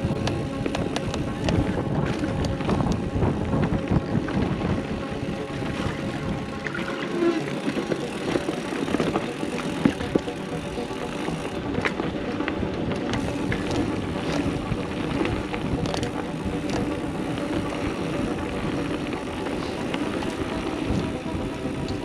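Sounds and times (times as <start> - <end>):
bike clicks and rattles: 0.0 - 6.7, 7.3 - 22.0
wind rush over microphone: 0.0 - 10.5, 11.4 - 22.0
tyres rolling on dirt: 7.4 - 22.0.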